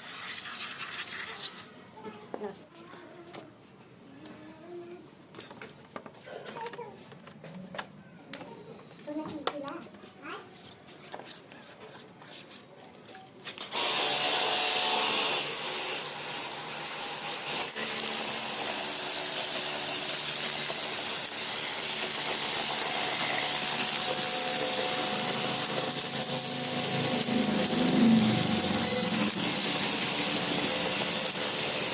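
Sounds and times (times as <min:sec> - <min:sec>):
water jet hissing: 0:00.0 - 0:02.0, 0:15.3 - 0:31.9
pressure washer motor humming: 0:13.6 - 0:31.9.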